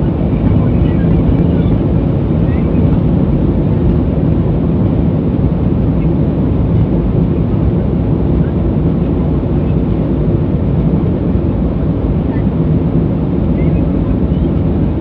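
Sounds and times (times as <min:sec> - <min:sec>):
jet engine rumble inside cabin: 0:00.0 - 0:15.0.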